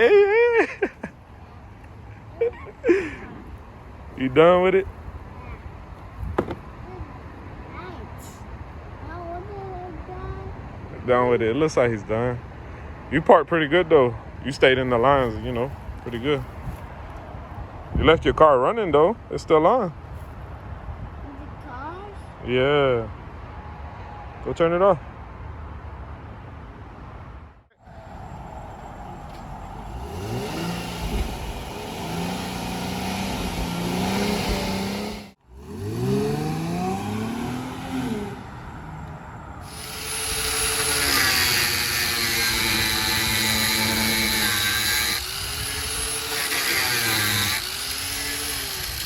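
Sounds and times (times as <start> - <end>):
car engine revving: 27.9 - 44.8
power cutting tool slicing metal: 30.2 - 37.2, 39.6 - 49.0.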